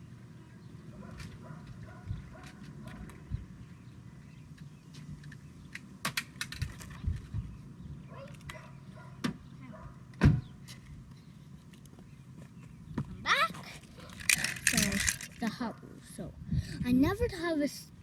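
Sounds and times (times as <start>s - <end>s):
plastic toys clicking and knocking: 5.2s - 7.0s, 13.7s - 15.6s.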